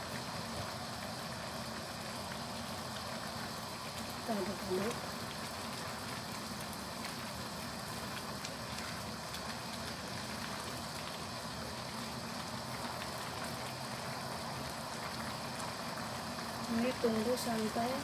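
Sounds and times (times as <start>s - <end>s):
curry simmering bubbling hiss: 0.0s - 18.0s.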